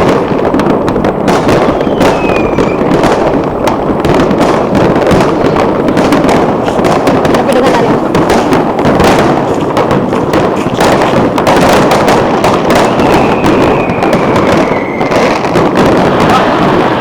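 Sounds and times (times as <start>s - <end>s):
fireworks crackling bangs: 0.0s - 17.0s
falling whistle: 1.7s - 2.9s, 12.7s - 15.4s.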